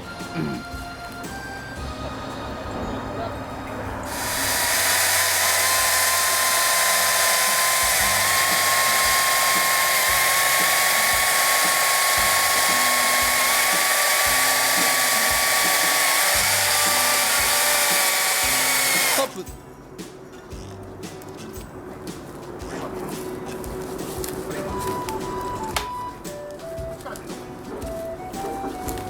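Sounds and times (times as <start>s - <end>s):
chainsaw cutting wood: 4.1s - 19.4s.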